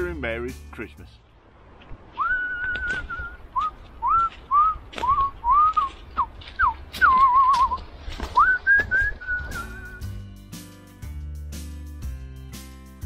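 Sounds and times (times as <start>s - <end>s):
person whistling: 2.2s - 7.8s, 8.4s - 10.2s.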